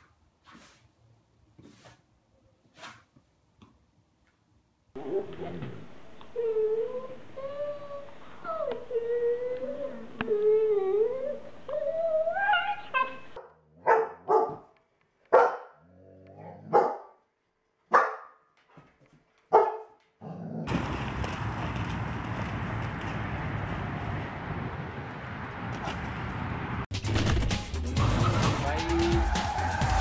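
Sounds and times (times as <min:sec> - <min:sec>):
dogs whining and howling: 0:06.3 - 0:13.4
dog barking: 0:13.4 - 0:14.7, 0:15.3 - 0:15.8, 0:16.5 - 0:17.2, 0:17.9 - 0:18.4, 0:19.5 - 0:20.0
water splashing in a puddle: 0:20.7 - 0:24.4.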